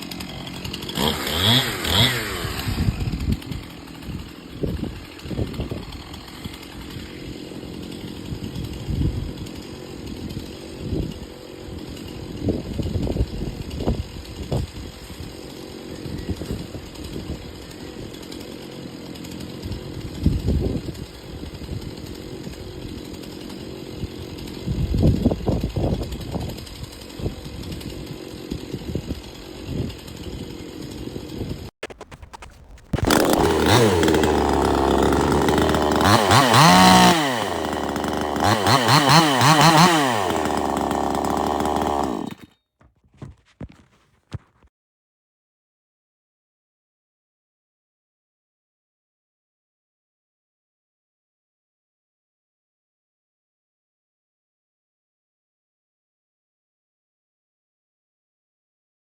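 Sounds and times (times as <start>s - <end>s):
chainsaw chugging at low speed: 0.0s - 44.7s.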